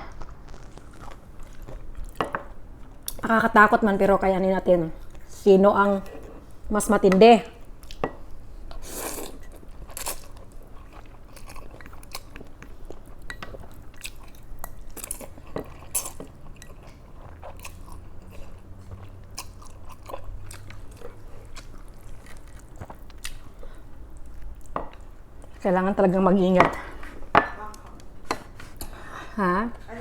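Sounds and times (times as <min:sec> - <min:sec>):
chewing and crunching food: 0:00.0 - 0:03.4, 0:07.6 - 0:26.1.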